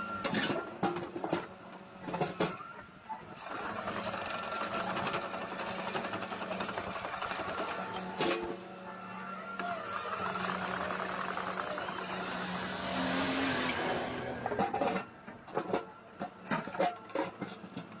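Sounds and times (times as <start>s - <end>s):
excavator engine running: 3.4s - 16.6s.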